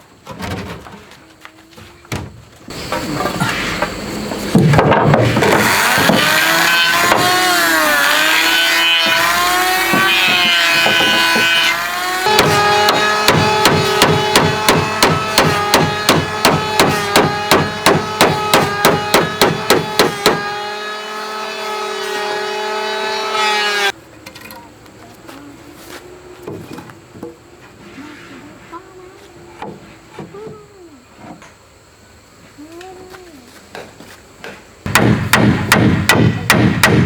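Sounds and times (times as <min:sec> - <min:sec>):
hammer blows on wood: 0:09.8 - 0:20.6.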